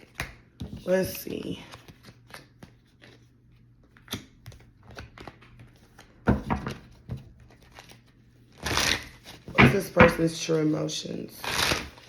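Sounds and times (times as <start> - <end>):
cards tapping and clicking: 0.0 - 3.2
cards knocking: 6.3 - 7.2, 9.2 - 10.5.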